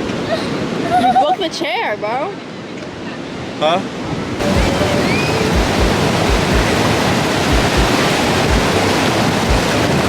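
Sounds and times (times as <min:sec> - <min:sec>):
ocean surf rushing: 0:03.4 - 0:10.0.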